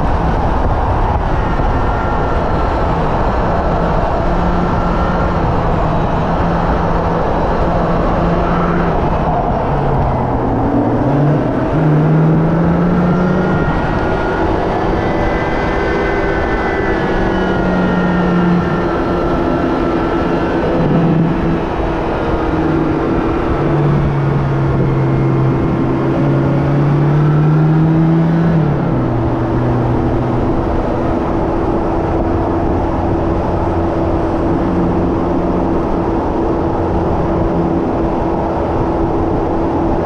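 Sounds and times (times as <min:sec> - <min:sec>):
car engine running hard: 0:00.0 - 0:40.0
wind and road noise: 0:00.0 - 0:40.0.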